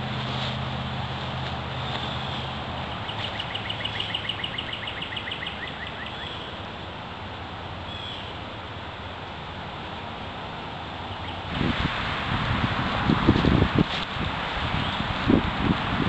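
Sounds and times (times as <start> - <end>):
steady background noise: 0.0 - 16.0
bird singing fast trill: 2.0 - 6.6.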